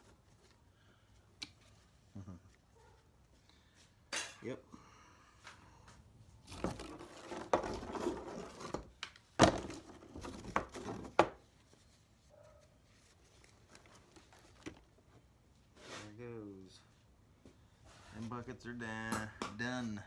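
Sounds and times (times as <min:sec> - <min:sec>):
scrap rustling and scraping: 0:06.4 - 0:09.0, 0:09.6 - 0:16.3, 0:17.8 - 0:18.4.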